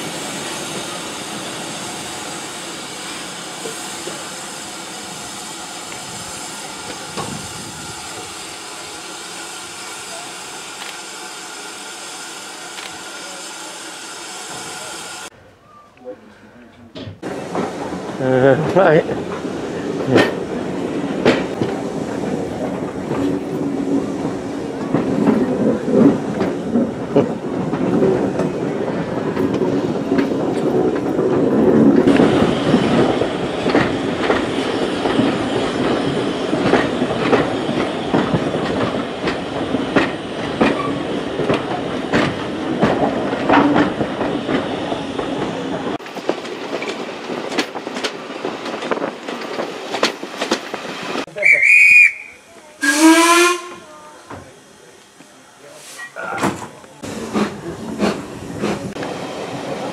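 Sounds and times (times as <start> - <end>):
train rumble: 0.0 - 15.3, 17.0 - 59.9
wheels clicking over rail joints: 24.2 - 52.7.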